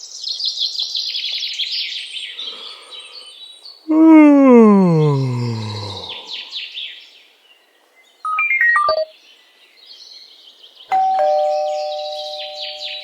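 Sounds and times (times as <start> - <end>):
birds chirping: 1.1 - 3.9, 5.2 - 13.0
descending chime notes: 10.9 - 13.0
two-tone doorbell chime: 10.9 - 13.0.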